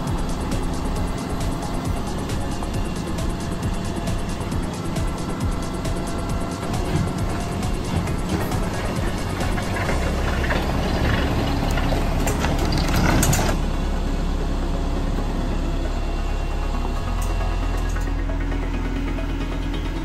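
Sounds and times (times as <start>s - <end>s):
engine running under load: 0.0s - 20.0s
clanking and knocking: 3.3s - 13.6s.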